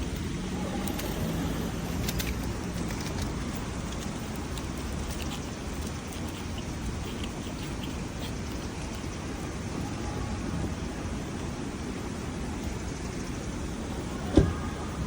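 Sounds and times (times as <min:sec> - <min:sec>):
small ticks: 0:00.0 - 0:09.3
faint low hum: 0:00.0 - 0:15.0.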